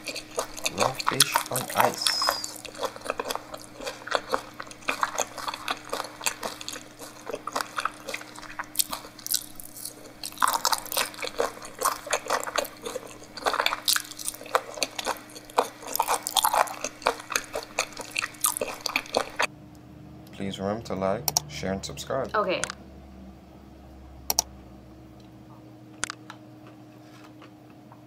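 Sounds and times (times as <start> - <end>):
wet mouth chewing: 0.0 - 19.5.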